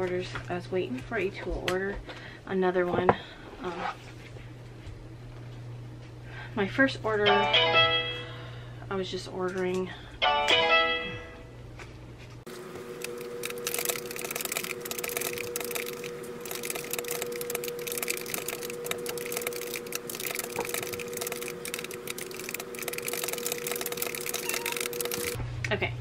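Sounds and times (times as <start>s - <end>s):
steady hum: 12.3s - 26.0s
keyboard typing: 13.0s - 25.4s.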